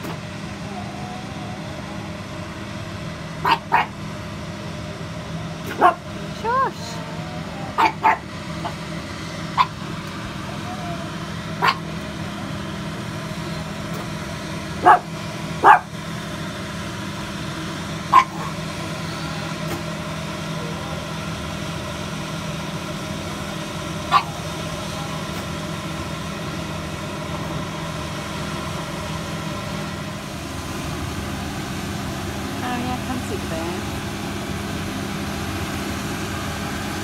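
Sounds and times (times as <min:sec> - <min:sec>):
combine harvester engine drone: 0:00.0 - 0:37.0
dog barking: 0:03.4 - 0:04.0, 0:05.7 - 0:06.0, 0:07.7 - 0:08.8, 0:09.6 - 0:09.8, 0:11.6 - 0:11.9, 0:14.8 - 0:15.9, 0:18.1 - 0:18.6, 0:24.1 - 0:24.4.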